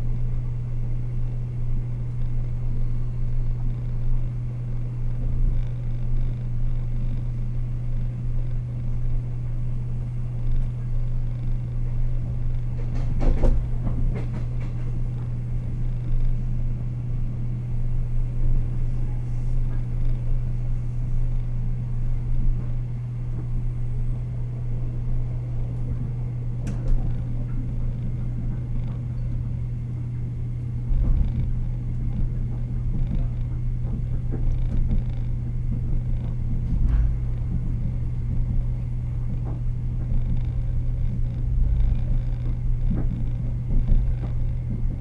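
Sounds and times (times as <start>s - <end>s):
train interior low hum: 0.0s - 45.0s
wheels rumbling on track: 30.8s - 45.0s.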